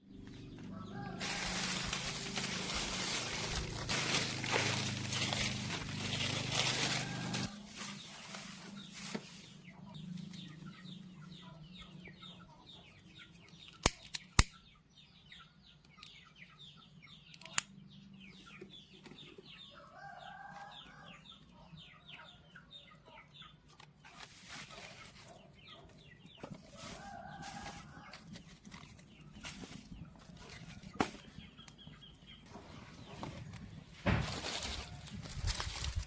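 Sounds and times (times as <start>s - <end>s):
birds chirping: 0.0s - 24.2s.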